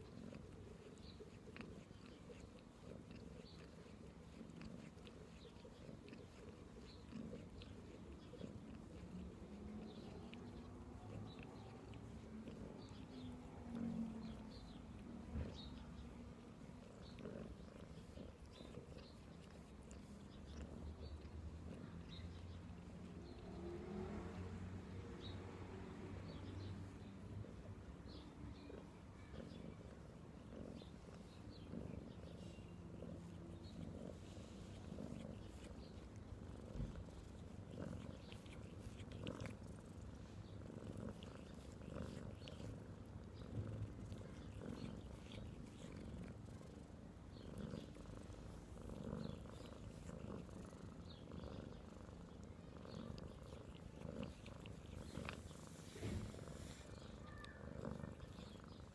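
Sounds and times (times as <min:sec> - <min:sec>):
cat purring: 0:00.0 - 0:58.9.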